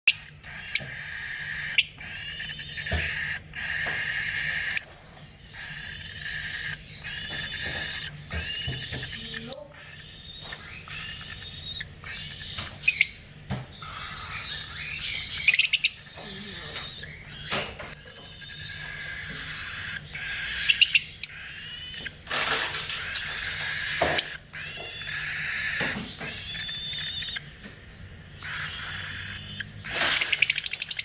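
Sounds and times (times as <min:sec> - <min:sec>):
cockatiel raspy hissing calls: 0:28.4 - 0:30.7.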